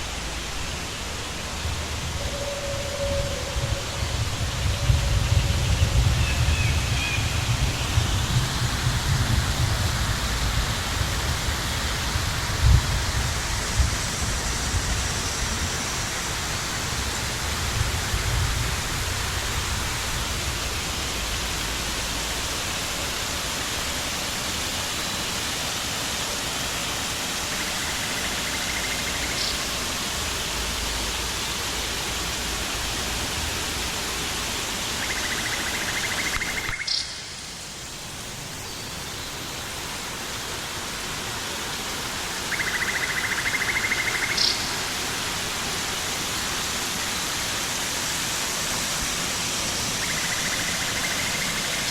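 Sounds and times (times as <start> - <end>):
low rumbling: 0.0 - 14.9
flowing water rushing: 0.0 - 51.9.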